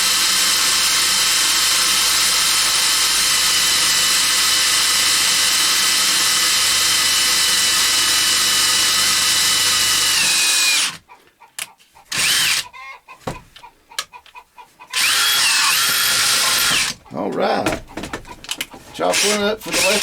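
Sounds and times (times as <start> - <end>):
electric drill drilling: 0.0 - 11.0, 12.1 - 12.6, 14.9 - 17.0, 19.1 - 20.0.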